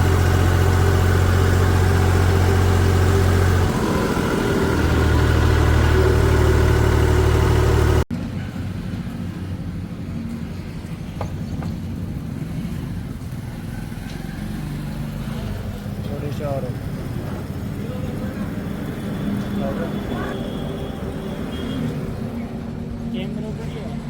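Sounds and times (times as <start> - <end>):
heavy diesel engine humming: 0.0 - 9.5, 15.6 - 24.0
quieter engine running: 0.0 - 13.4, 15.4 - 24.0.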